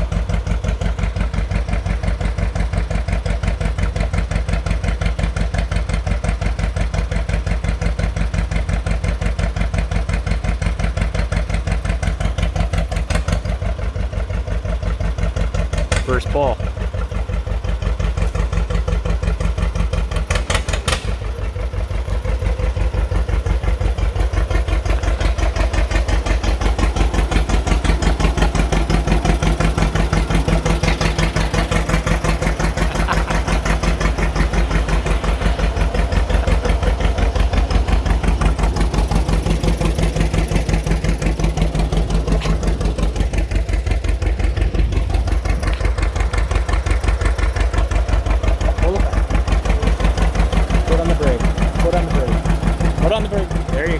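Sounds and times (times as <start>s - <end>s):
tractor engine running: 0.0s - 53.9s.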